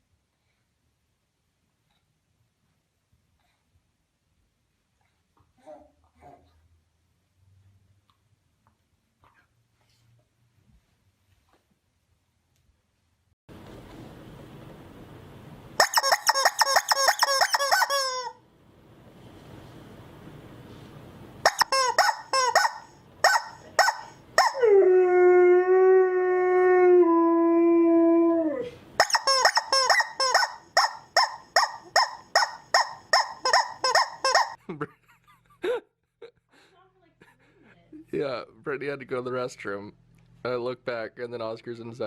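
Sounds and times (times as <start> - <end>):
dog yipping and yelping: 15.8 - 18.3, 21.5 - 24.7, 29.0 - 34.6
dog howling: 23.4 - 28.8.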